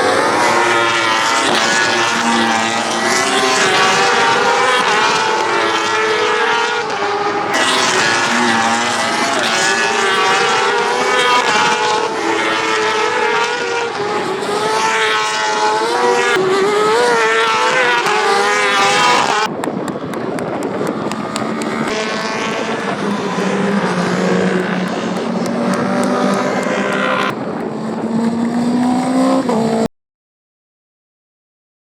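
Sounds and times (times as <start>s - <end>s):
racing motorcycle engines revving: 0.0s - 29.9s.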